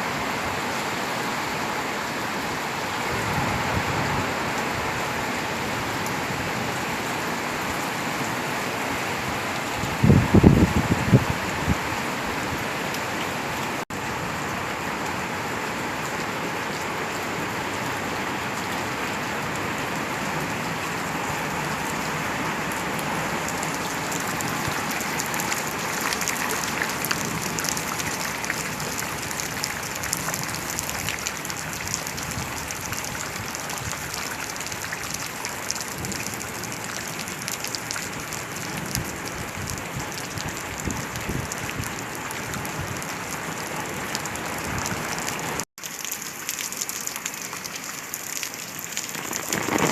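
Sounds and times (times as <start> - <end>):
steady rain falling: 0.0 - 49.9
raindrop impacts: 45.8 - 49.9.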